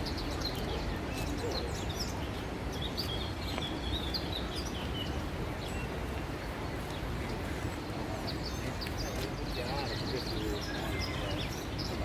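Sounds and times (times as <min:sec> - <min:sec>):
small birds chirping: 0:00.0 - 0:06.2, 0:06.8 - 0:12.0
low outdoor background noise: 0:00.0 - 0:12.0.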